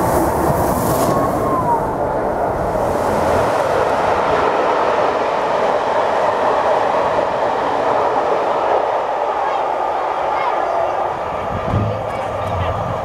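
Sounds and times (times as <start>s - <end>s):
train wheels rushing on rails: 2.3s - 13.0s.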